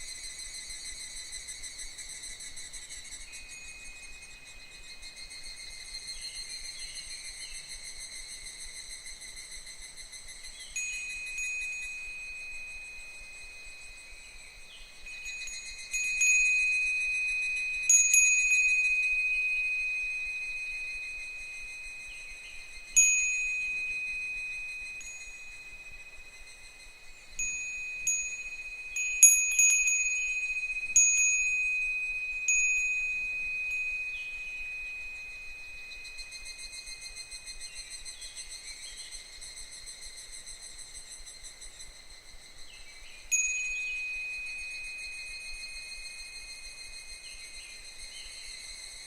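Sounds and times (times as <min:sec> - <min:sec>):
insects trilling: 0:00.0 - 0:49.0
wind chime ringing: 0:10.7 - 0:38.1, 0:43.3 - 0:49.0.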